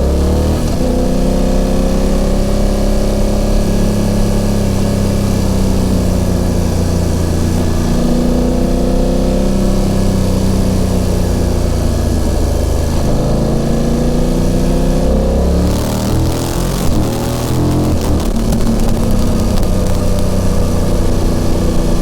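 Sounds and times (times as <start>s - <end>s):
motorcycle engine running: 0.0s - 22.0s
wind noise: 15.5s - 22.0s.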